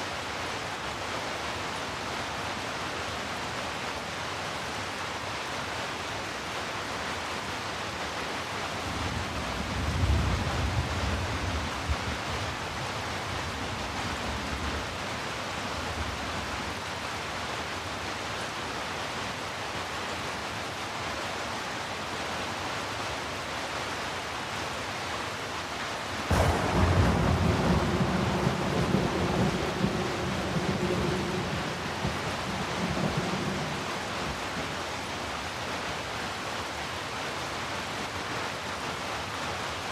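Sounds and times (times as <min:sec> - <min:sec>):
steady rain falling: 0:00.0 - 0:39.9
sharp thunderclap: 0:26.3 - 0:33.8
distant thunder rolling: 0:26.3 - 0:34.6.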